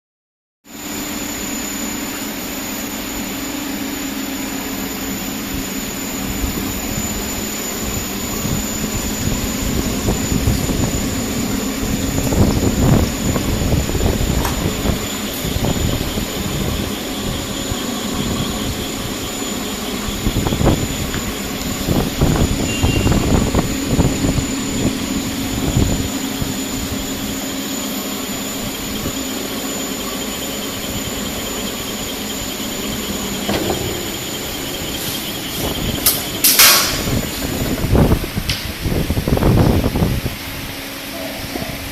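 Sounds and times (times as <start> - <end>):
machine hum with high whine: 0.7 - 41.9
machine knocks: 33.4 - 37.6.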